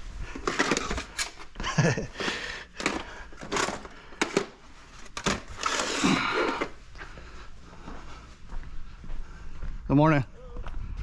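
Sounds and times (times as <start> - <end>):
scrap parts knocking and clattering: 0.3 - 1.5, 2.2 - 6.7
scrap parts rattling: 0.3 - 1.5, 2.2 - 6.8.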